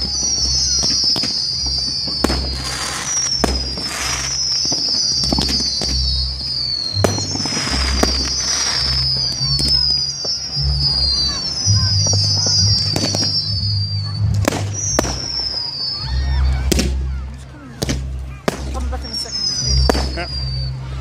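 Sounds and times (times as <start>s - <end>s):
high falling whistles: 0.0s - 16.7s, 19.1s - 21.0s
fireworks bangs: 0.0s - 21.0s
fireworks crackling bursts: 0.0s - 21.0s
music with stepped bass: 10.5s - 15.0s.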